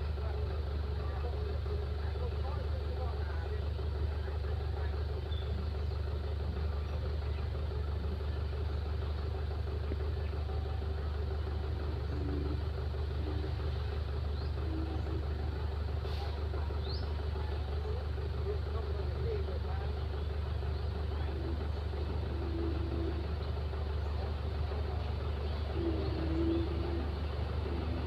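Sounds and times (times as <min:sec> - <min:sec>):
diesel engine low drone: 0:00.0 - 0:28.0
steady hum: 0:24.7 - 0:28.0.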